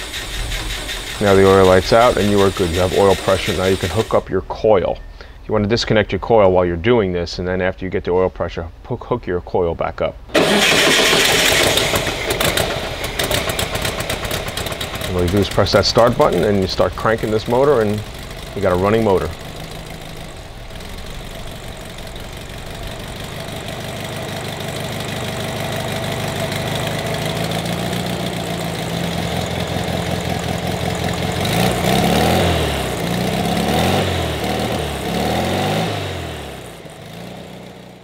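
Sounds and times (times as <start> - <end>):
engine running and revving: 0.0 - 4.1, 10.4 - 16.6, 17.2 - 37.8.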